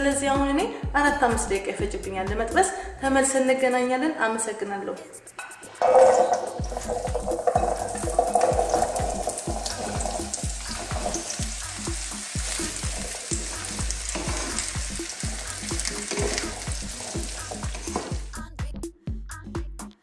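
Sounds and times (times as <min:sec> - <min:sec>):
background music with steady beat: 0:00.0 - 0:20.0
vegetables sizzling in oil: 0:05.7 - 0:18.4
wooden spatula stirring: 0:05.8 - 0:18.3.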